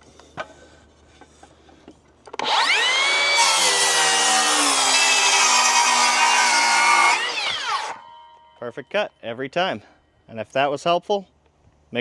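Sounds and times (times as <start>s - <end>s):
circular saw cutting wood: 2.4s - 8.5s.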